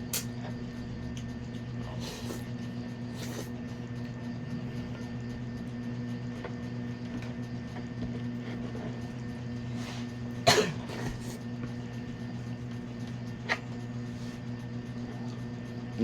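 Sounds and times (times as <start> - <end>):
steady low hum: 0.0 - 16.0
man coughing: 10.4 - 11.4.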